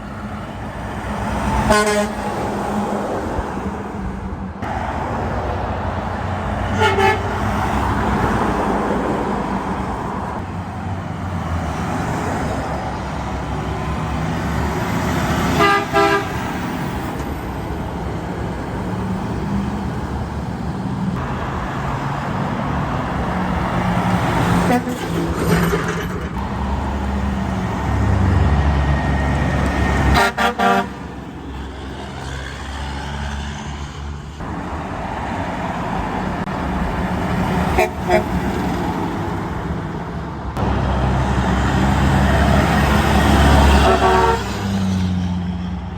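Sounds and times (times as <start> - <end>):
trucks and traffic rumbling: 0.0 - 45.9
vehicle horns honking: 1.7 - 2.2, 6.7 - 7.6, 15.5 - 16.5, 24.6 - 25.2, 30.0 - 31.1, 37.7 - 38.4, 43.6 - 44.6.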